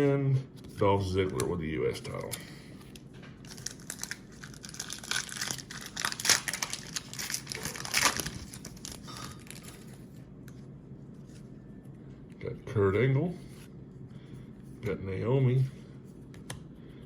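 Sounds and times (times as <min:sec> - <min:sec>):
foil wrapper crinkling and tearing: 0:02.1 - 0:10.0.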